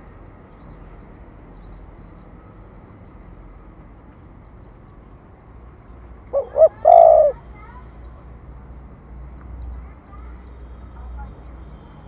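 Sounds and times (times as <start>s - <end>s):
dove cooing: 6.3s - 7.4s.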